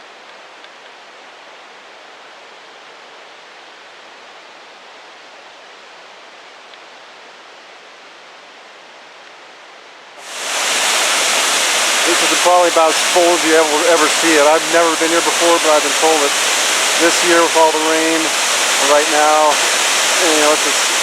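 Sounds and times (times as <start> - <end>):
distant flowing water: 10.2 - 21.0.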